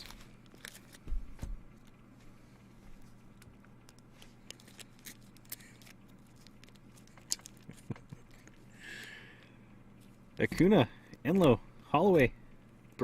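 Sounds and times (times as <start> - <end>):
trading cards clicking and rustling: 0.0 - 2.0, 3.0 - 9.4
faint steady hum: 0.0 - 13.0.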